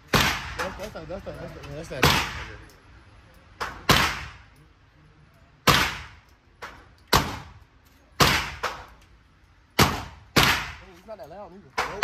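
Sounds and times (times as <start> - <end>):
gunshots with echoing tail: 3.6 - 4.4, 9.8 - 10.8.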